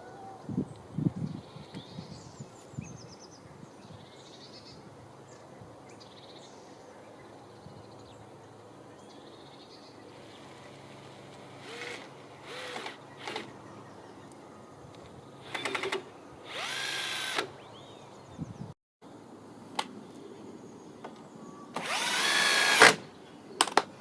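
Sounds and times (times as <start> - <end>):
small birds trilling: 0.0 - 18.7.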